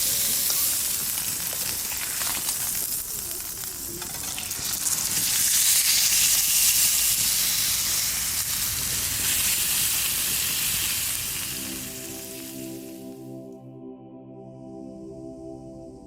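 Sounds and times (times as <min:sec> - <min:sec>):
food sizzling in a frying pan: 0:00.0 - 0:13.1
soft music with held tones: 0:10.8 - 0:16.0.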